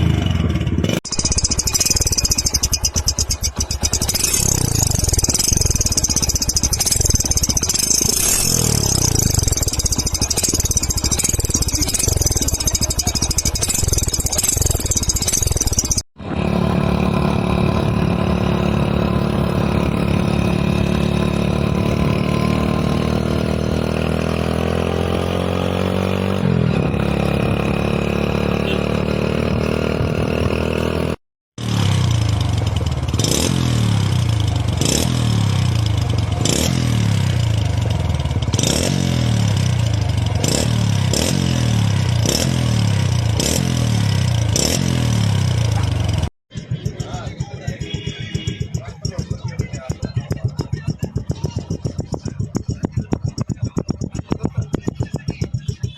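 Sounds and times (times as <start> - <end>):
motorcycle engine revving: 0.0 - 55.9
exhaust pops: 1.2 - 16.0, 45.6 - 55.9.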